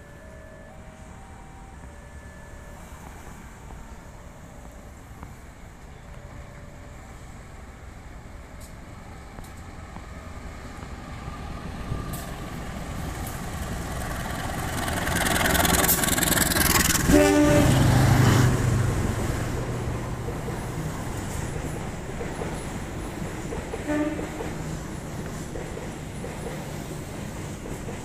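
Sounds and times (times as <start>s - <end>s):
diesel train passing: 0.0s - 28.0s
train horn toot: 16.8s - 18.1s, 23.8s - 24.6s.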